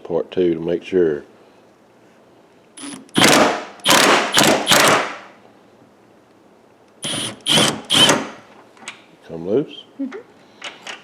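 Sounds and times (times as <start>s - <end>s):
impact wrench hammering: 2.8s - 5.4s, 7.0s - 8.4s.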